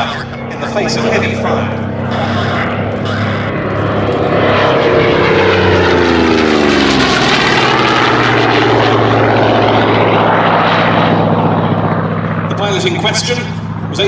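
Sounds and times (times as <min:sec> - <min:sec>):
propeller plane flying past: 0:00.0 - 0:14.0.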